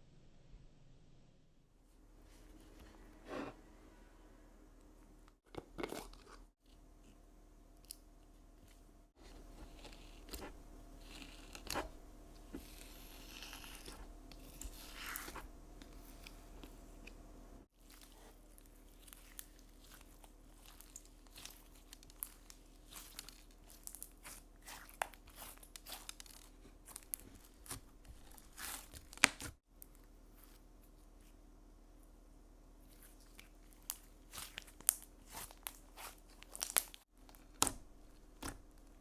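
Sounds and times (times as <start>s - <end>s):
slime crackling and popping: 17.8s - 29.6s, 33.4s - 37.8s.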